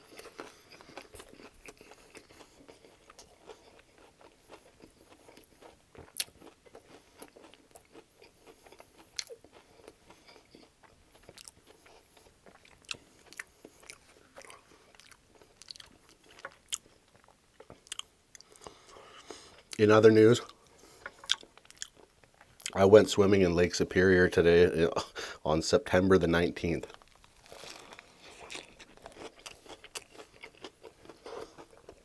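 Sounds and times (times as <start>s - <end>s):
soft mouth chewing sounds: 0.0s - 22.9s, 26.8s - 32.0s
sharp food crunches: 26.9s - 32.0s.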